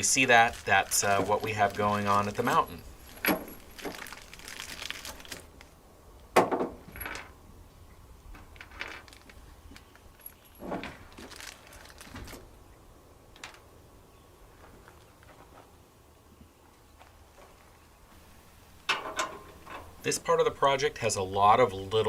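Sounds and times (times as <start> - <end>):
hose fittings clinking and knocking: 0.9 - 5.4, 18.8 - 20.1.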